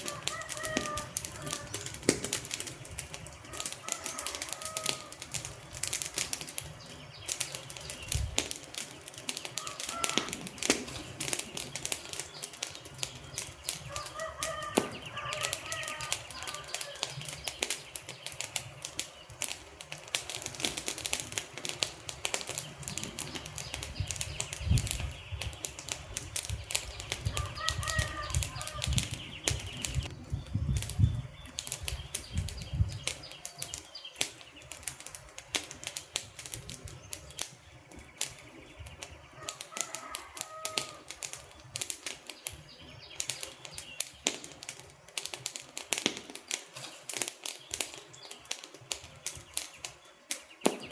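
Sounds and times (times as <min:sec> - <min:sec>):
wood fire crackling: 0:00.0 - 0:50.9
short birdcalls: 0:09.6 - 0:11.0.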